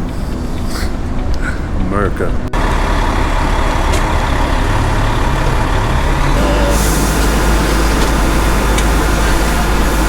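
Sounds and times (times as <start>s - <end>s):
heavy vehicle engine rumbling: 0.0s - 10.0s
air hiss: 6.3s - 10.0s.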